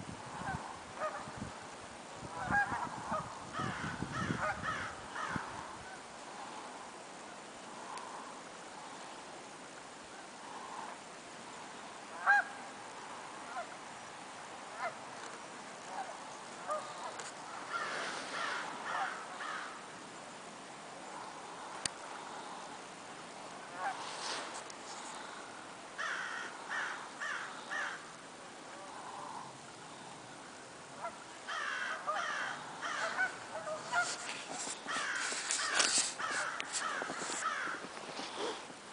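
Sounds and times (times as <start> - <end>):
steady background hiss: 0.0 - 38.9
birds harsh calls: 31.5 - 38.6.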